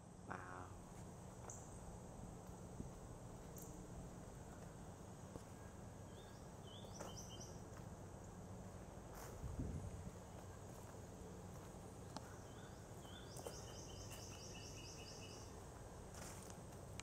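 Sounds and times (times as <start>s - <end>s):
outdoor background noise: 0.0s - 17.0s
bird chirping: 5.6s - 7.6s, 12.0s - 15.6s.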